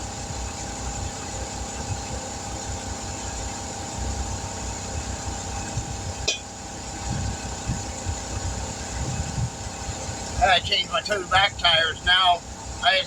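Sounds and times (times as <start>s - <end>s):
vehicle engine idling: 10.0s - 13.0s.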